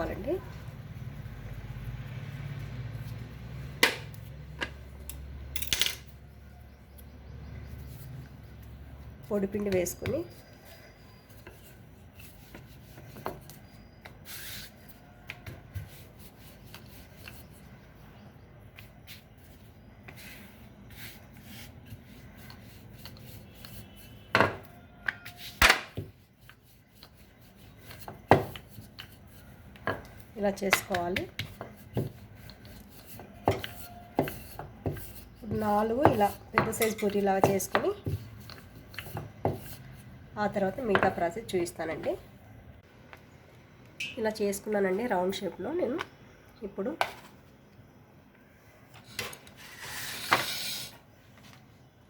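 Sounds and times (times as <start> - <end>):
rolling pin rubbing on dough: 7.5 - 18.0, 18.6 - 41.1.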